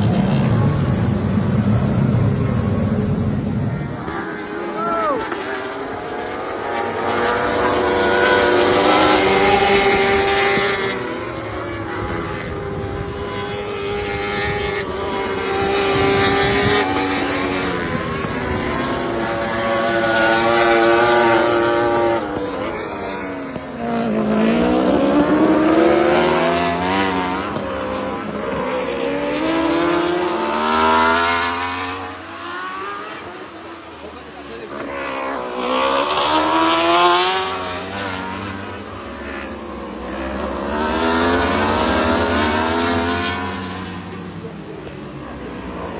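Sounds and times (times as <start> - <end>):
superbike engine at full throttle: 0.0 - 45.9.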